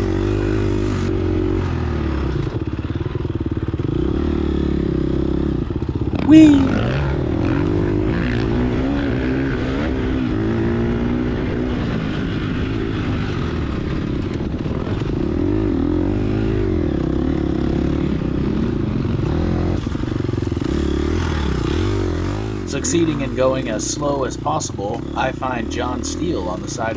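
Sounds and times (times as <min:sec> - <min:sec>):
dirt bike engine revving: 0:06.1 - 0:11.9.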